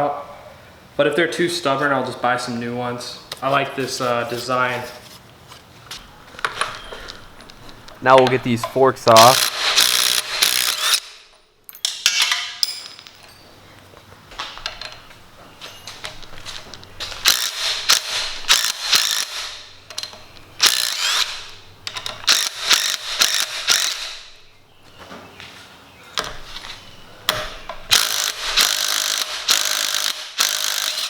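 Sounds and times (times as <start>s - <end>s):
hand tools clicking and rattling: 7.4s - 24.3s, 27.3s - 31.0s.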